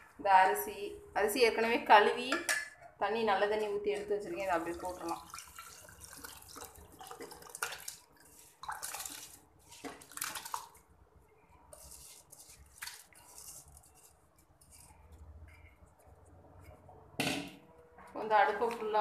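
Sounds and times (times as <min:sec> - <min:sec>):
water dripping: 0:03.9 - 0:18.2
water and rice pouring and splashing: 0:04.3 - 0:17.0.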